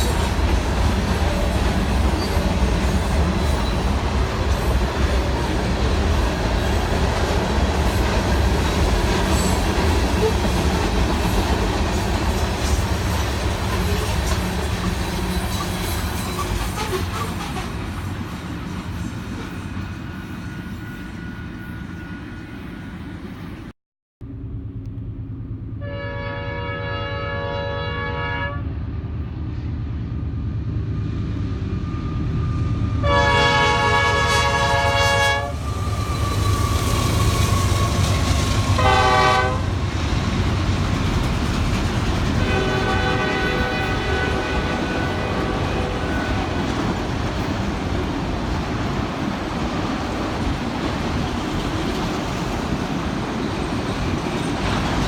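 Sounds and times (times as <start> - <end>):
train rumble: 0.0 - 55.0
locomotive air horn: 25.8 - 28.8, 32.9 - 39.8, 42.4 - 46.7.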